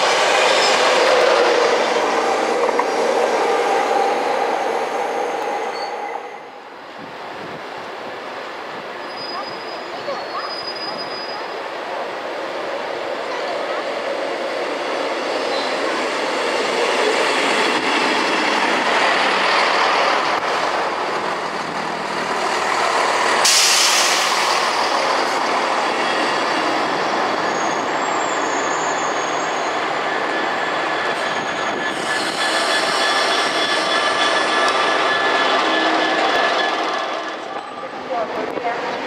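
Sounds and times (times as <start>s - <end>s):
train wheel and rail noise: 0.0s - 39.0s
loud hiss: 23.2s - 25.4s.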